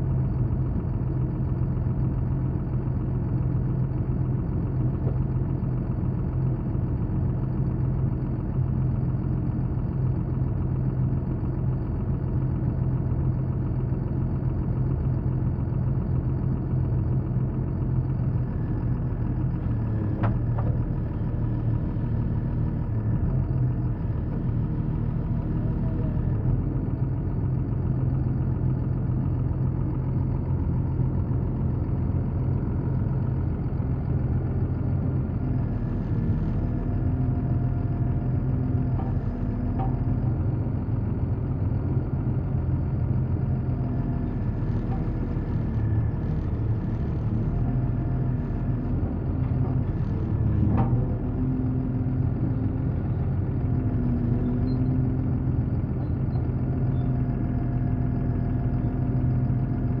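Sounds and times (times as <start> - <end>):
heavy engine idling: 0.0 - 60.0.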